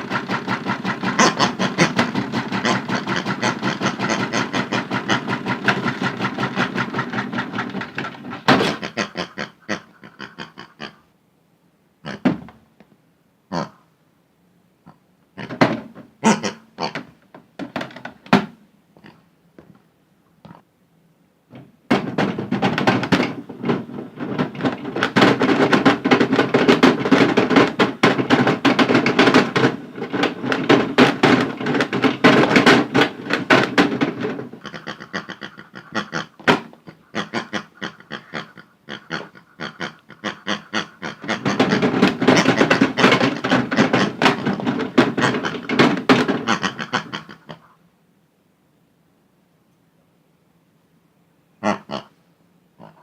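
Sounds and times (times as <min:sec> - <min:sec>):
toys knocking in washing machine drum: 0:00.0 - 0:09.0, 0:12.2 - 0:12.6, 0:15.4 - 0:16.1, 0:16.9 - 0:18.6, 0:21.5 - 0:37.6, 0:40.8 - 0:47.4.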